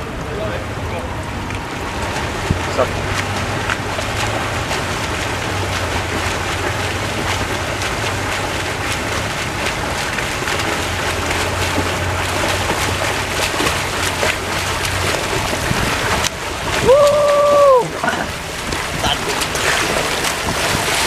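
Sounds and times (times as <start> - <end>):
swimmers splashing: 0.0 - 21.0.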